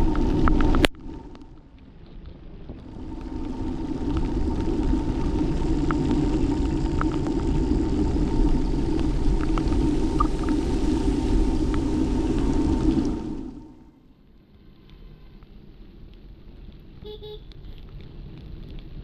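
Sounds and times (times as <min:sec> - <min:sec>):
car road and engine rumble: 0:00.0 - 0:19.0
faint ticks: 0:14.3 - 0:19.0.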